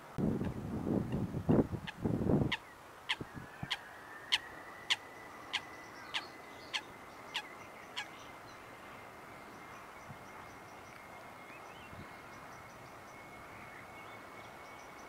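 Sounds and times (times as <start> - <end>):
wind rumble on microphone: 0.0 - 4.3.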